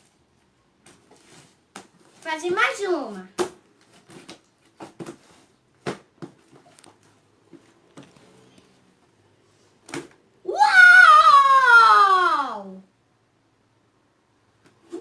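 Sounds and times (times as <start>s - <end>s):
child exclaiming loudly: 10.5s - 12.9s.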